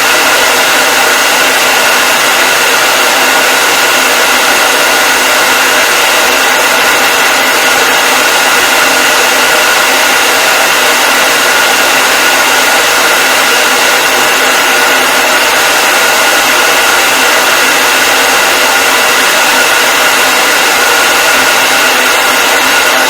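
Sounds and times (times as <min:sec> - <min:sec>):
hair dryer running: 0:00.0 - 0:23.0.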